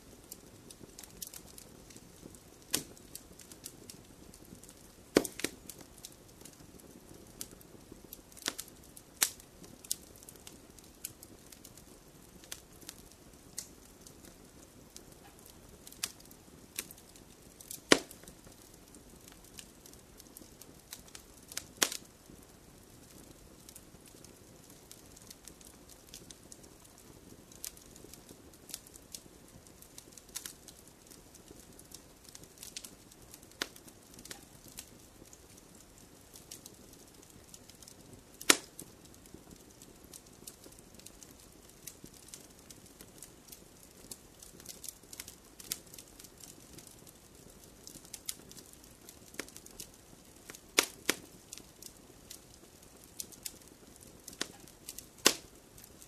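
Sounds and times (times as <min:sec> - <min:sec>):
fireplace fire crackling: 0:00.0 - 0:56.0.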